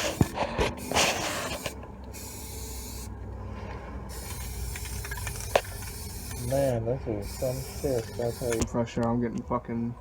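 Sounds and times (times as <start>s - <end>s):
sharp clicks: 7.4s - 9.1s.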